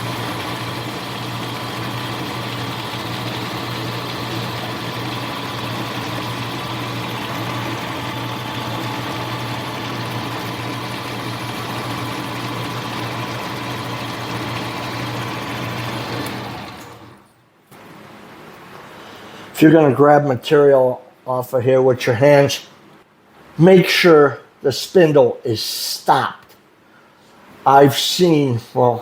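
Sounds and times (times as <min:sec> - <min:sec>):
lathe gear whine: 0:00.0 - 0:17.3
metal lathe motor hum: 0:00.0 - 0:17.3.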